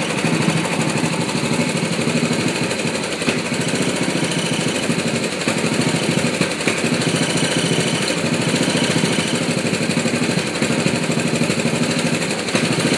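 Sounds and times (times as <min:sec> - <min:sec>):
lawn mower engine misfiring: 0:00.0 - 0:12.9.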